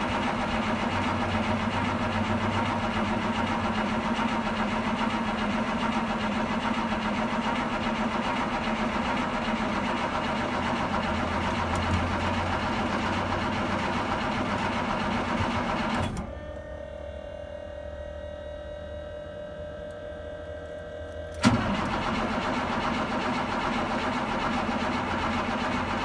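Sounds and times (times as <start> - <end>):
diesel engine idling: 21.5 - 26.0.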